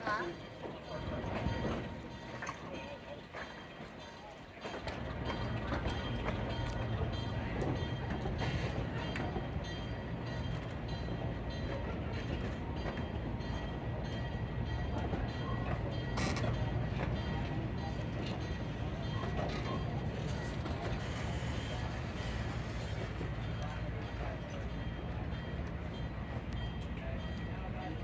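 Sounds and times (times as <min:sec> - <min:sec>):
train rumbling: 0:04.6 - 0:28.0.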